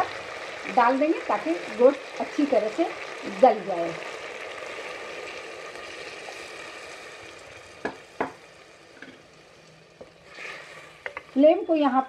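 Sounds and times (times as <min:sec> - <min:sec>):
water pouring: 0:00.0 - 0:09.2
meat sizzling in hot oil: 0:00.0 - 0:12.0.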